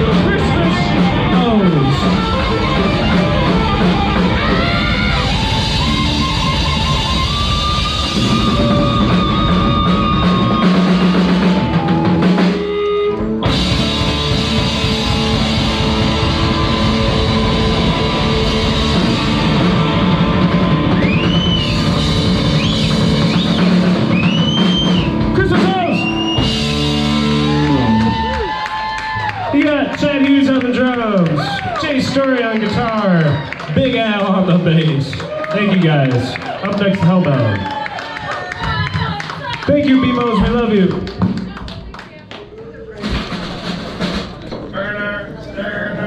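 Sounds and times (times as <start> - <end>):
electric guitar bending notes: 0.0 - 28.5
live rock band playing: 0.0 - 29.3.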